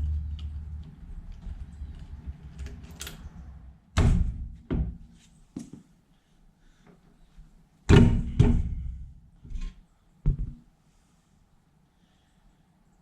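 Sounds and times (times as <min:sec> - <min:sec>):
heavy thuds and knocks: 0:07.9 - 0:09.7, 0:10.3 - 0:10.7.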